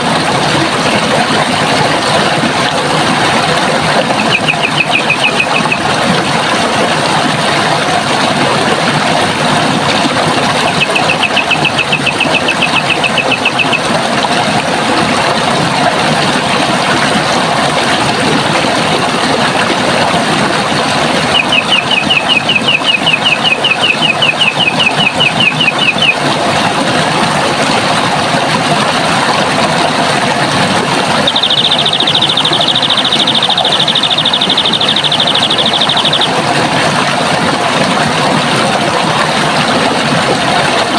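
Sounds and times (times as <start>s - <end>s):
running water rushing: 0.0s - 40.9s
bird's rapid high trill: 4.1s - 5.9s, 10.6s - 13.9s, 21.3s - 26.2s, 31.2s - 36.4s.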